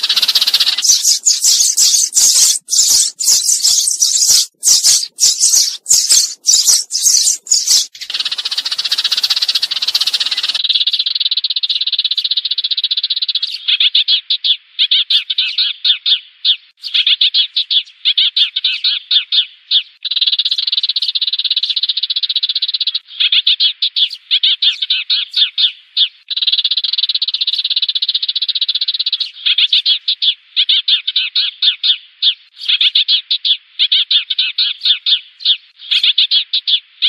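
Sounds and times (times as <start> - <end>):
fast high trills: 0.0 - 7.9
sparrows chirping: 0.0 - 36.8.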